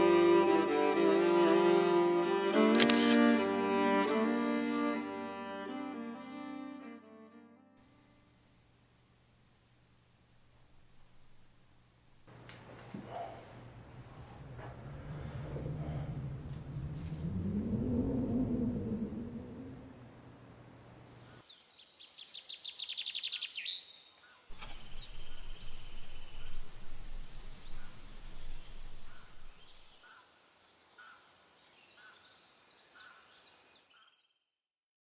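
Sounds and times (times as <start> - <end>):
faint forest hiss: 7.8 - 33.9
songbirds chirping and trilling: 12.4 - 34.2.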